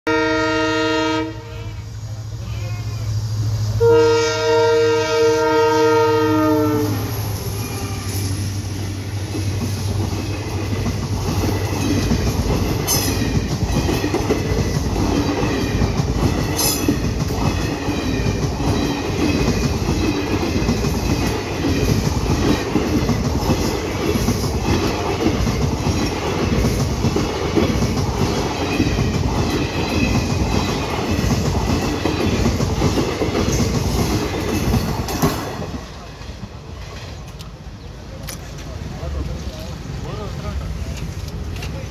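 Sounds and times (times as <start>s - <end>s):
train horn blasts: 0.1s - 2.0s, 3.8s - 8.4s
train coaches rumbling past: 0.1s - 41.9s
wheels clacking over rail joints: 7.6s - 39.7s.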